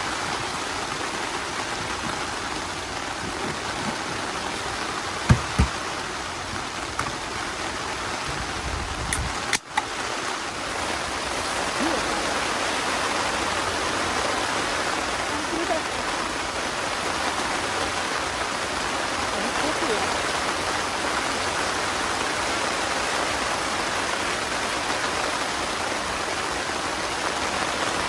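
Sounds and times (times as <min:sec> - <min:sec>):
rushing water: 0:00.0 - 0:28.0
dull thumps: 0:05.2 - 0:06.0.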